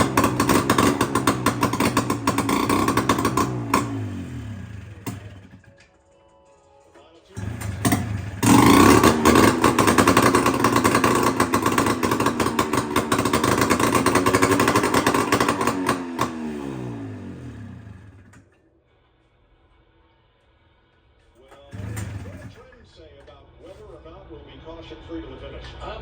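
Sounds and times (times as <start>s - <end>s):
two-stroke engine running loudly: 0.0s - 5.7s, 7.4s - 18.4s, 21.7s - 22.6s
engine spinning down: 0.0s - 5.8s, 7.4s - 18.5s, 21.6s - 22.9s.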